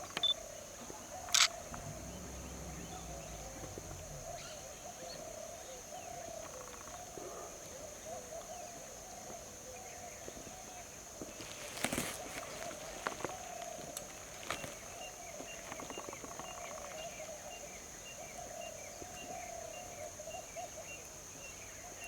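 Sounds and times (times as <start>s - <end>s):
sharp clicks: 1.3s - 4.4s.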